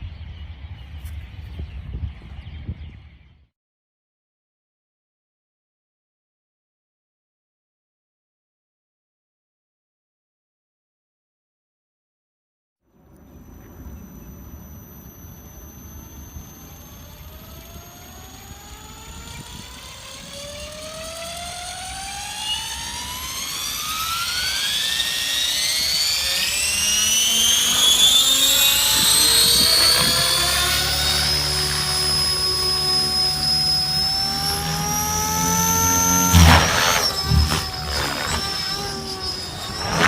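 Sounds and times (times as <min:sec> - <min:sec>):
low rotor hum: 0:13.0 - 0:40.0
motor and gear whine: 0:13.0 - 0:40.0.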